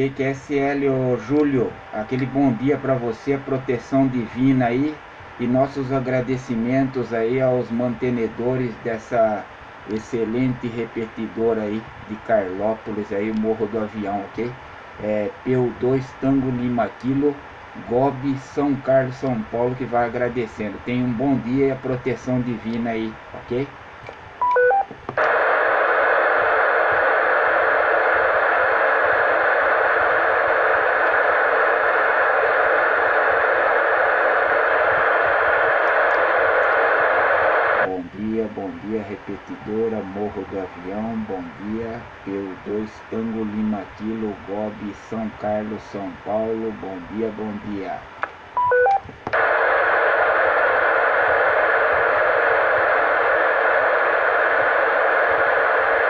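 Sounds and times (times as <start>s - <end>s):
radio static hiss: 0.0s - 56.0s
radio courtesy tone beeps: 1.2s - 3.0s, 24.4s - 24.9s, 48.6s - 49.5s.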